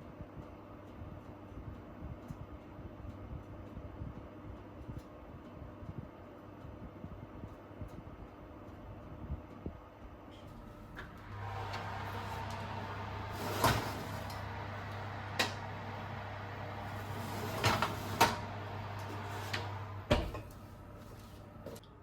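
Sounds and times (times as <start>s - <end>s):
kitchen appliance humming: 10.5s - 21.9s
appliance clunk: 10.9s - 20.7s.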